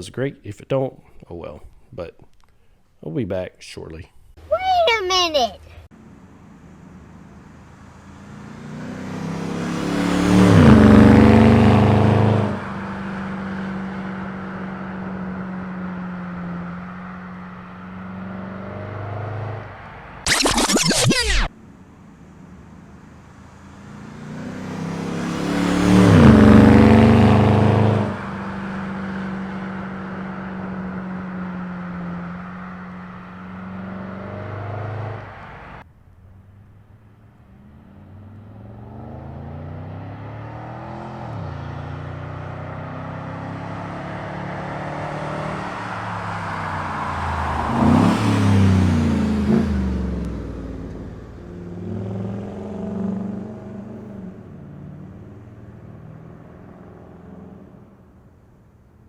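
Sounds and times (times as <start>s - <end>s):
car engine accelerating: 5.9s - 35.8s, 37.5s - 57.8s.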